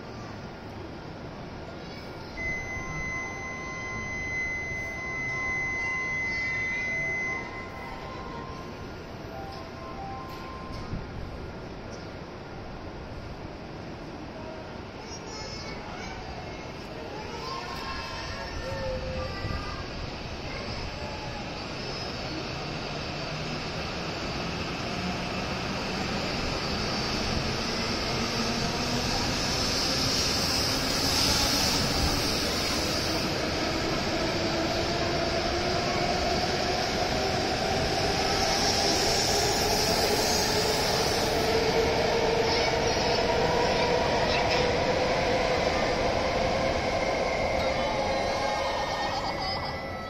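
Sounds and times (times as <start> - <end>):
train cars rumbling: 16.6 - 50.0.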